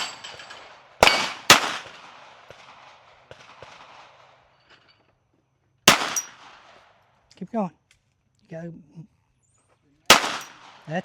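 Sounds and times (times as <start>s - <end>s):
pistol shot echoing: 0.0s - 4.4s, 5.9s - 6.9s, 10.1s - 11.0s.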